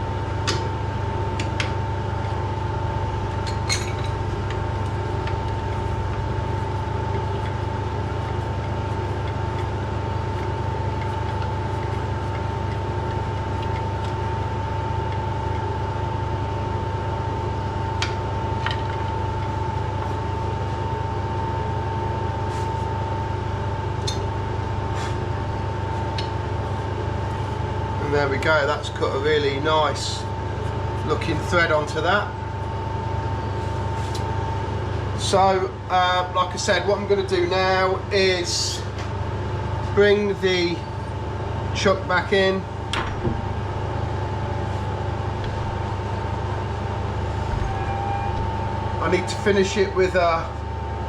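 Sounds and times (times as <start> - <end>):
metal lathe humming and whining: 45.1 - 50.9.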